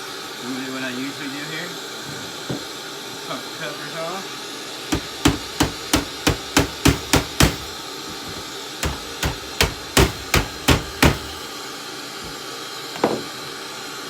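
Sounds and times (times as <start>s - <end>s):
hammer striking plastic case: 5.0s - 11.5s.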